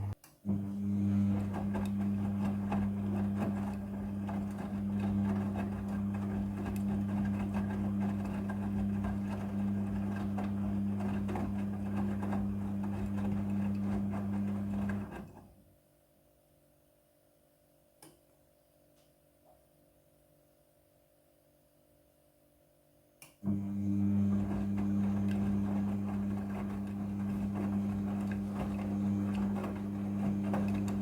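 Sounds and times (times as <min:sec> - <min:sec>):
washing machine running: 0:00.0 - 0:15.6, 0:23.4 - 0:31.0.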